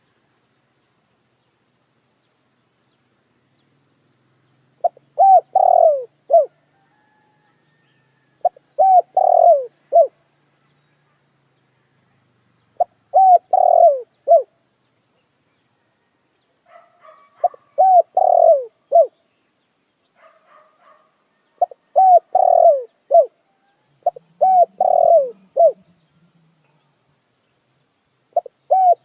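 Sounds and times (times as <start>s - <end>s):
faint bird twittering: 0.7s - 29.0s
dove cooing: 4.8s - 10.2s, 12.8s - 14.6s, 16.7s - 19.2s, 21.6s - 27.1s, 28.3s - 29.0s.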